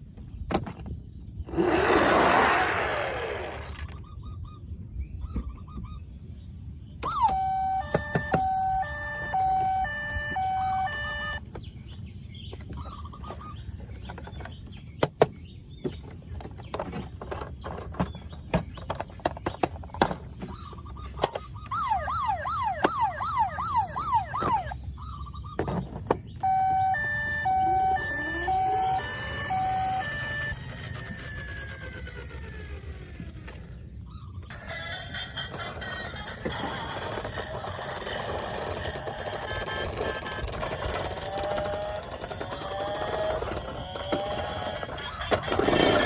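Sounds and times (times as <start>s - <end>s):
electronic toy siren: 7.0s - 11.4s, 21.2s - 24.9s, 26.4s - 33.6s, 34.5s - 46.0s
small plastic clicks: 37.0s - 46.0s.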